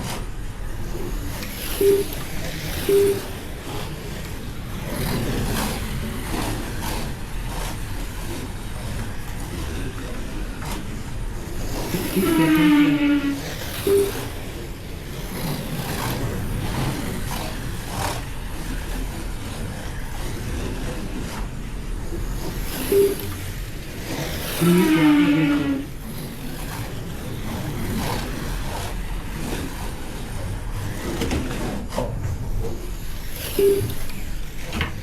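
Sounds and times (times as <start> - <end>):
slot car motors whirring: 0.0 - 35.0
short beep: 1.8 - 2.2, 2.9 - 3.3, 13.9 - 14.2, 22.9 - 23.2.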